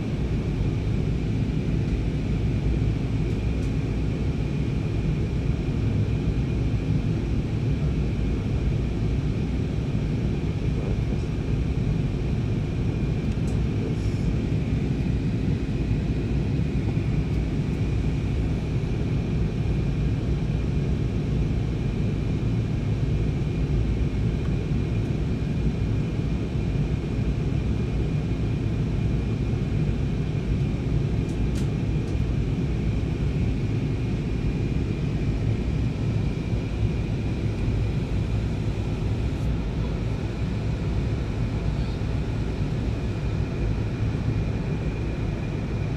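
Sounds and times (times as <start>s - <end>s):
airliner cabin engine drone: 0.0s - 45.9s.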